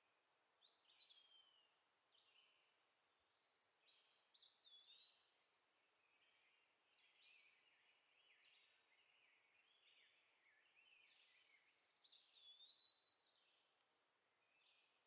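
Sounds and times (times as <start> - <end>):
birds chirping and twittering: 6.0 - 13.6.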